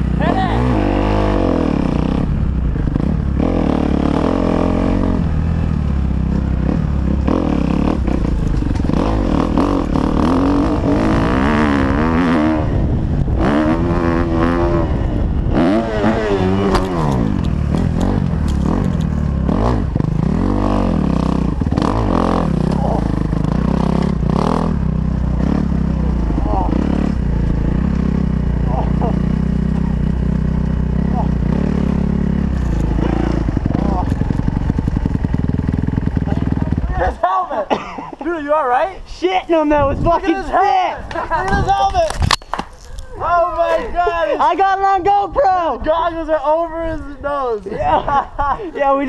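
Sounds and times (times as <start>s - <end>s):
dirt bike engine revving: 0.0s - 37.3s.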